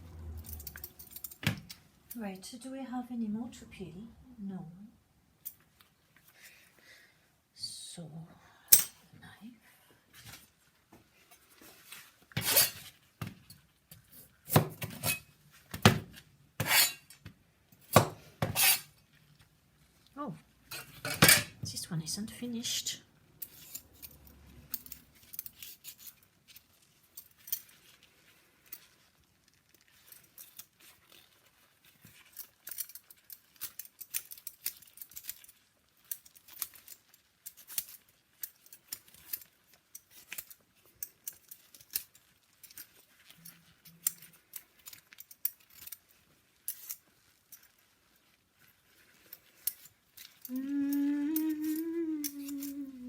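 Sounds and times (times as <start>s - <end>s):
knife scraping a vegetable: 11.3s - 13.1s, 14.1s - 15.4s, 16.6s - 17.2s, 17.9s - 19.2s.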